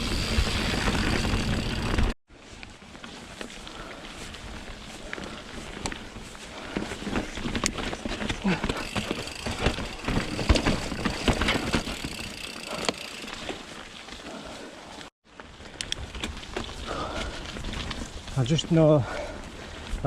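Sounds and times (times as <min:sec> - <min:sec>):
bike rattling over rocks: 0:00.0 - 0:02.2, 0:04.4 - 0:14.2
bike tyre noise: 0:00.0 - 0:20.0.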